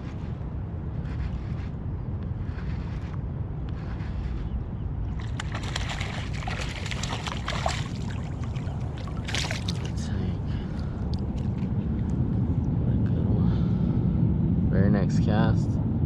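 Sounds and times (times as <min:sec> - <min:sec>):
wind buffeting microphone: 0:00.0 - 0:16.0
water splashing and crackling: 0:05.2 - 0:10.0.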